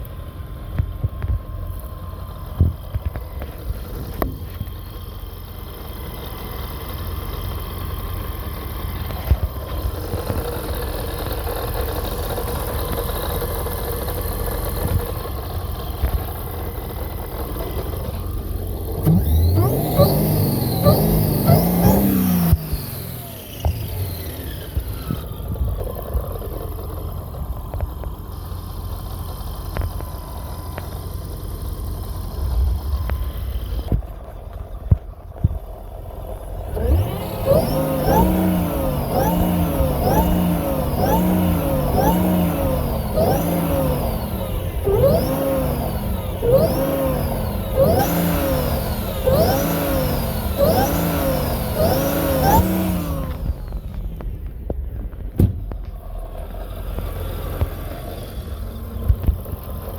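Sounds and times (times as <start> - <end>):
supercharger whine: 0.0 - 59.9
car engine revving: 3.0 - 59.9.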